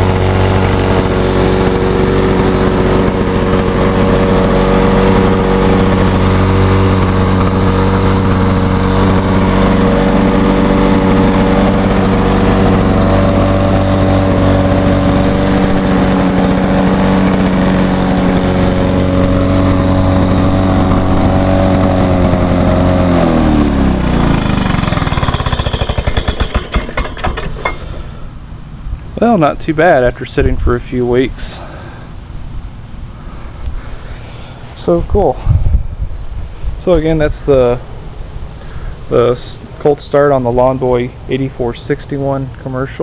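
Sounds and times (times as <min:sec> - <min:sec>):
lawn mower engine running: 0:00.0 - 0:43.0.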